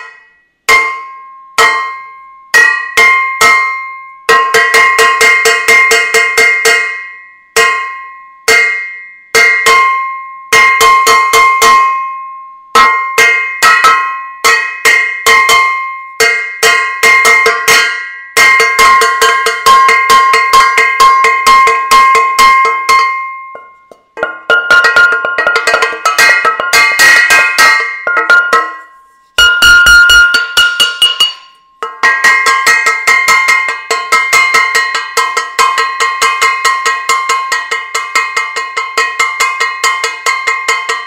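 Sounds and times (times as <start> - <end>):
metal saucepan banging: 12.8 - 41.0.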